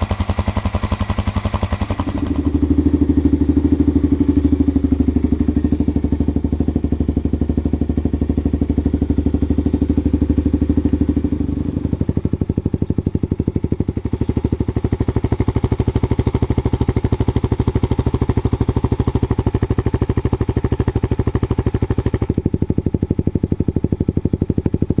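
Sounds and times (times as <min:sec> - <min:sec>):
motorcycle engine idling: 0:00.0 - 0:25.0.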